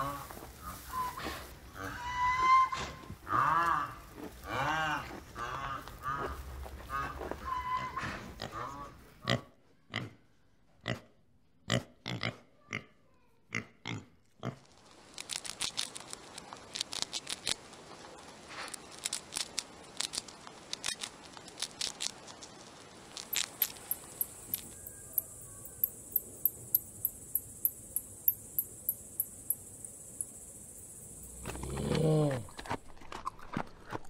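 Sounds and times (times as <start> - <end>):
hamster gnawing corn cob: 15.0 - 17.7, 18.5 - 25.7
pig grunting: 31.4 - 32.5.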